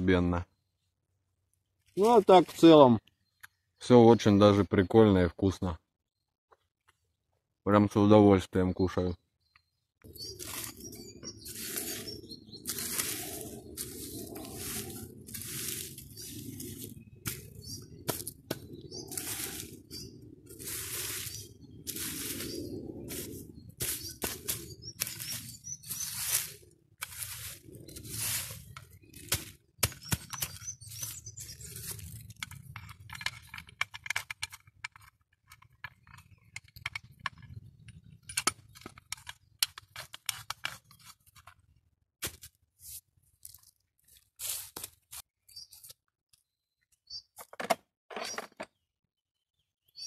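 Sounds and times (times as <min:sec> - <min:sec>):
small clicks and crunches: 0:28.6 - 0:41.7.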